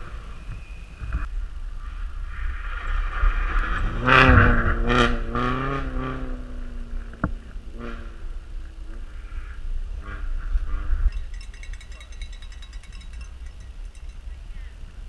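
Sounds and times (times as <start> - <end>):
low wind rumble: 0.0 - 15.0
rally car engine passing: 2.6 - 8.5.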